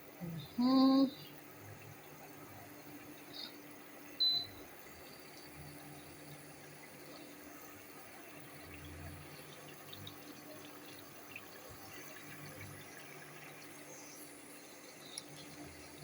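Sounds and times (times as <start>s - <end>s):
stew pot hissing: 1.0s - 16.0s.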